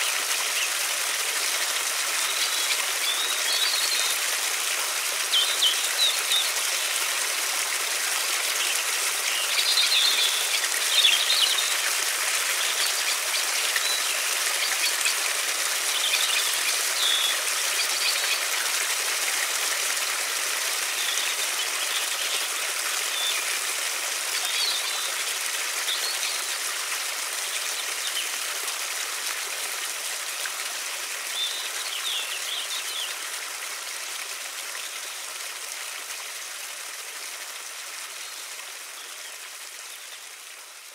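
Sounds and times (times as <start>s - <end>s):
river flowing: 0.0s - 40.9s.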